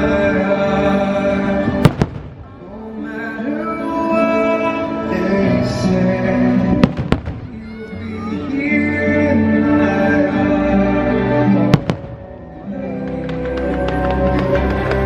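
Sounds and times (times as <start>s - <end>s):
firework bangs: 1.7s - 2.6s, 6.8s - 7.8s, 11.7s - 12.4s.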